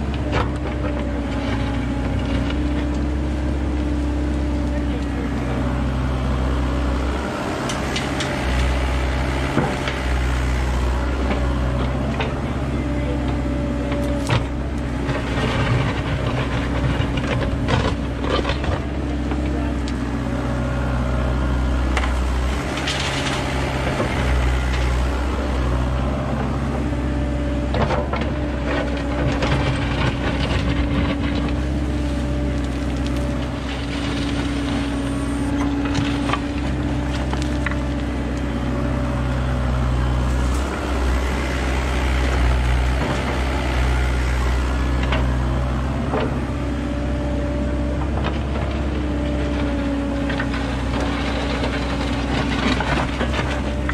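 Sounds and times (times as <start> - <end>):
diesel engine running under load: 0.0 - 53.9
bucket scraping through soil and stones: 40.3 - 42.2.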